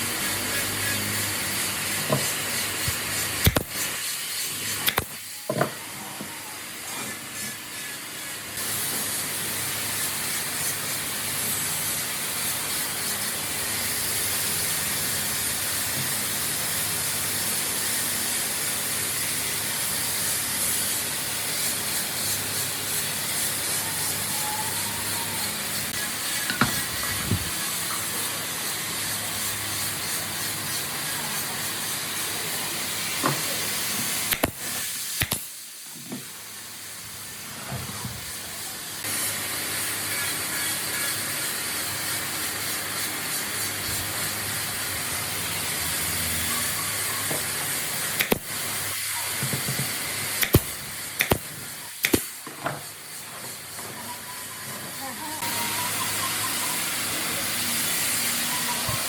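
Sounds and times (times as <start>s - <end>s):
compressed air hissing: 0.0s - 5.4s, 8.5s - 35.9s, 39.0s - 53.8s
sharp clicks and knocks: 49.4s - 52.9s.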